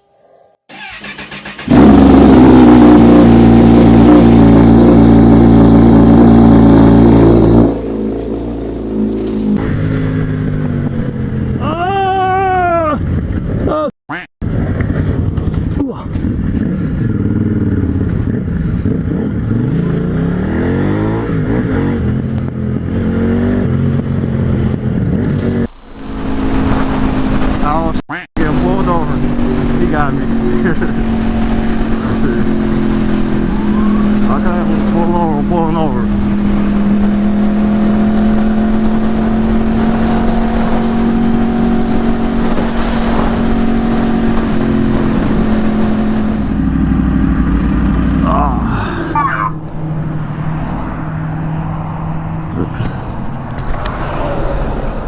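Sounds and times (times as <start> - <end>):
motorcycle engine accelerating: 0.7 - 11.7, 14.5 - 55.0
wind noise: 12.7 - 19.4
vehicle passing close by: 49.6 - 55.0.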